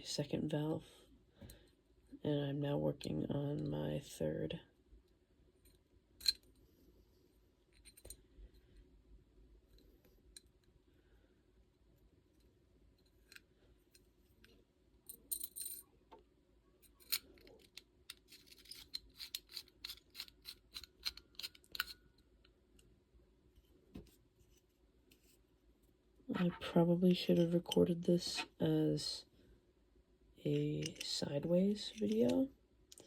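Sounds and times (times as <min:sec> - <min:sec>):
metal valve parts clicking and scraping: 0:05.7 - 0:06.6, 0:16.8 - 0:22.4, 0:26.3 - 0:28.6, 0:30.5 - 0:33.0.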